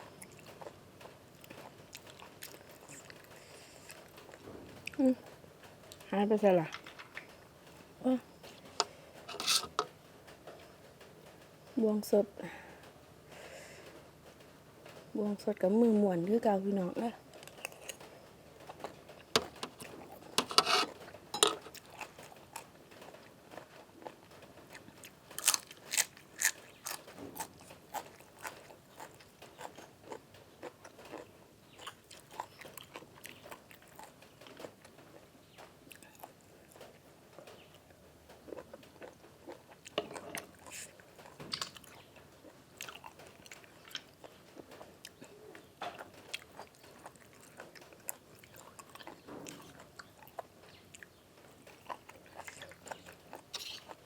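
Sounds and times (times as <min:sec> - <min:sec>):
wet chewing: 0:00.0 - 0:05.0, 0:17.3 - 0:34.8, 0:38.3 - 0:54.0
crunchy food crunching: 0:17.4 - 0:34.8, 0:42.8 - 0:54.0.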